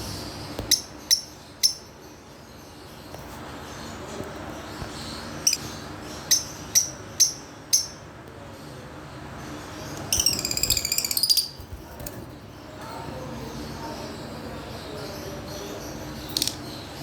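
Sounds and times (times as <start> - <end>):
shrill bird chirps: 10.0 - 11.6
bird chattering trill: 10.1 - 11.6.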